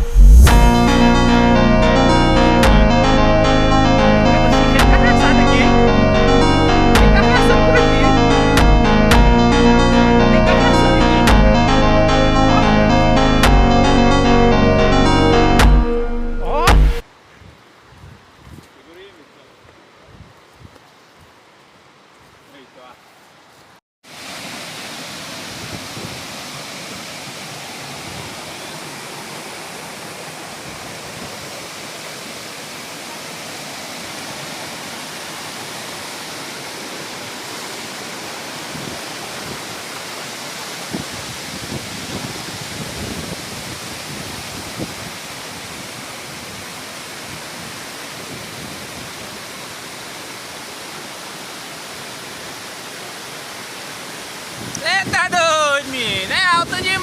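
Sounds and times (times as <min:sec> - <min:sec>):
waterfall rushing: 0:00.0 - 0:17.0, 0:24.1 - 0:57.0
water splashes: 0:24.1 - 0:56.3.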